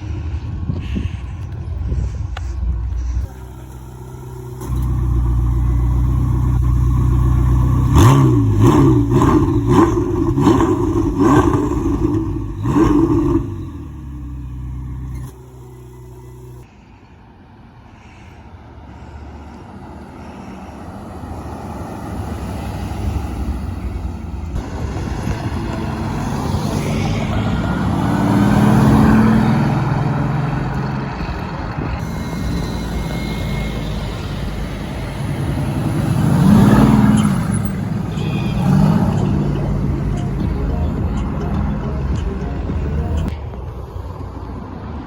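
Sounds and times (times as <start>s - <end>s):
sports cars revving past: 3.8s - 16.6s, 20.8s - 43.3s.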